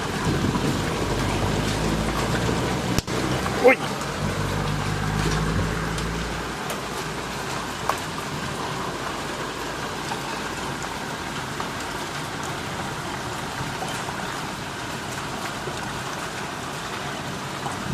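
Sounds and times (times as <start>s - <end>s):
heavy rain pouring: 0.0s - 17.9s.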